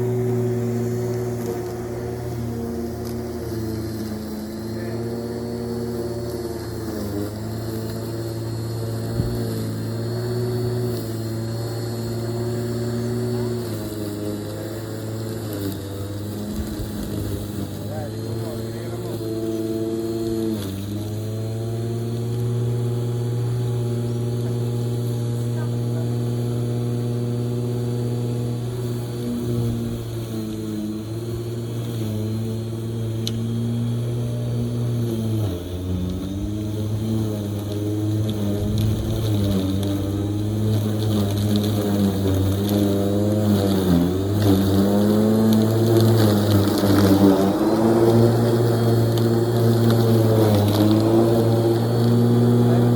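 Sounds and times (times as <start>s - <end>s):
lawn mower engine running: 0.0s - 52.9s.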